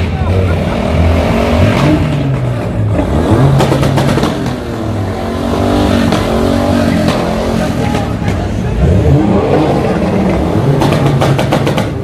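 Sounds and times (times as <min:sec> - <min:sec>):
car engine revving: 0:00.0 - 0:12.0
crowd noise: 0:00.0 - 0:12.0.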